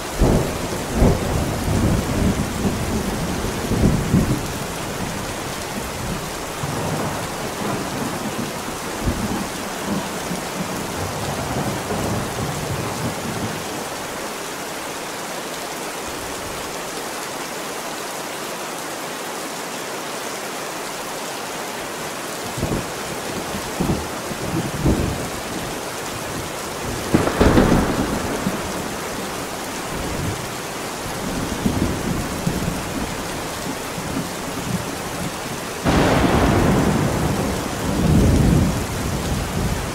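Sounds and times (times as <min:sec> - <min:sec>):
heavy rain: 0:00.0 - 0:39.9
thunder rumbling and cracking: 0:00.2 - 0:13.6, 0:22.6 - 0:30.5, 0:34.0 - 0:39.9.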